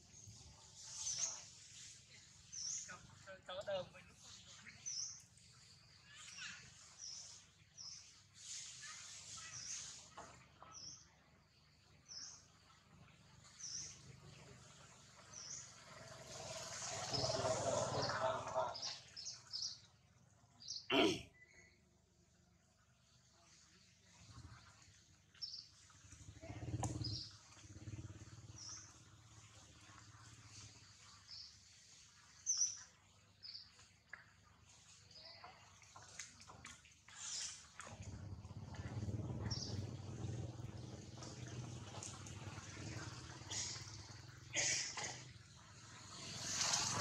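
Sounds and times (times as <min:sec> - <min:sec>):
outdoor background noise: 0:00.0 - 0:47.0
faint high bird chirps: 0:04.2 - 0:11.1.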